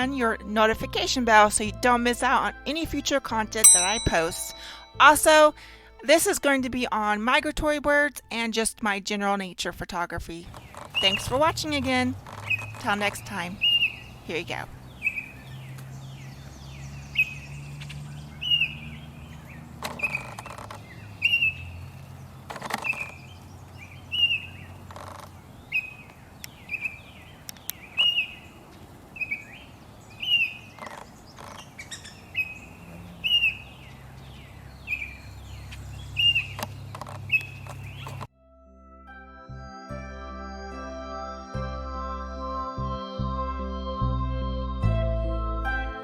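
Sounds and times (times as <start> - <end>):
bird chirping: 10.6 - 11.5, 12.4 - 38.3.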